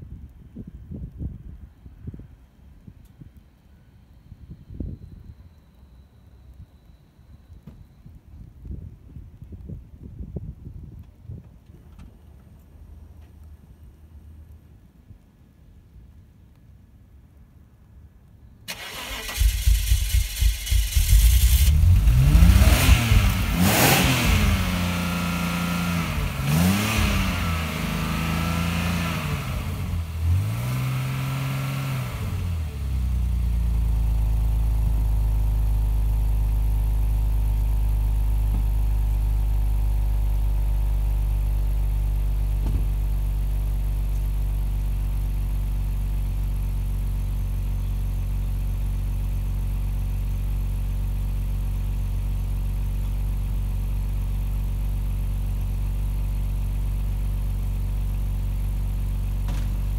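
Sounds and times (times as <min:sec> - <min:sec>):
car engine revving and idling: 0:18.9 - 0:59.9.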